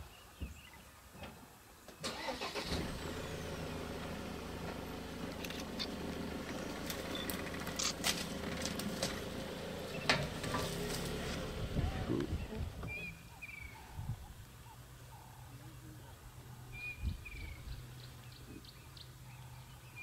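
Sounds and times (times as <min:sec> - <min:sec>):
vehicle engine starting and idling: 0:02.0 - 0:13.4.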